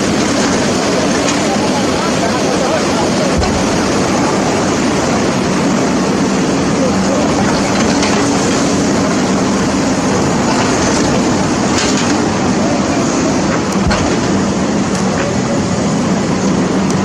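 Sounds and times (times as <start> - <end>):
engine running: 0.0 - 17.0
rush of noise: 0.0 - 17.0.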